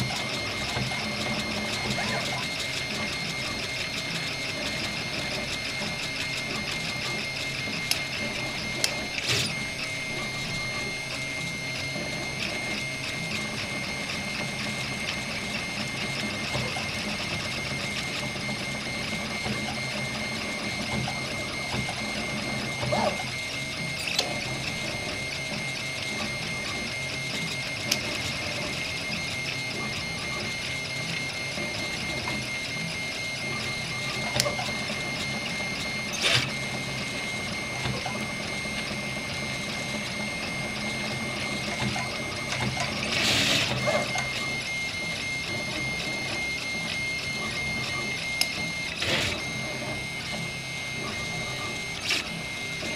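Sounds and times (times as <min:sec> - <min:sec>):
stepper motors whining: 0:00.0 - 0:52.9.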